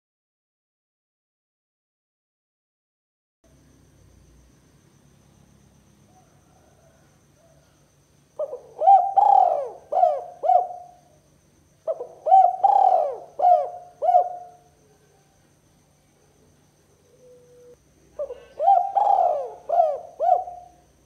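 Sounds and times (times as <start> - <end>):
dove cooing: 8.4 - 11.2, 11.8 - 15.3, 16.2 - 20.9.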